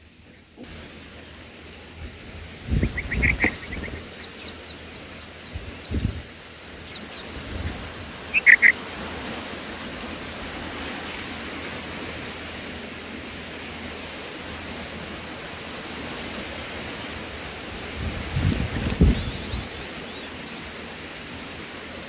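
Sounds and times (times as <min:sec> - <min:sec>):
outdoor hiss: 0:00.0 - 0:22.0
high bird chirps: 0:02.7 - 0:05.0, 0:08.3 - 0:08.8.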